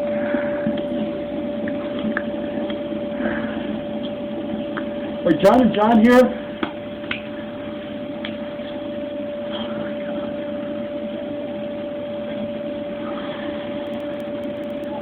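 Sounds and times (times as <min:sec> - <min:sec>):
constant high hum: 0:00.0 - 0:15.0.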